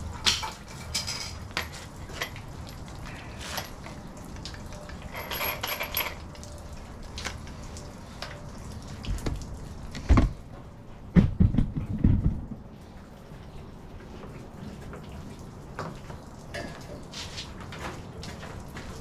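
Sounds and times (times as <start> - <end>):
heavy dull thumps: 11.1 - 12.7.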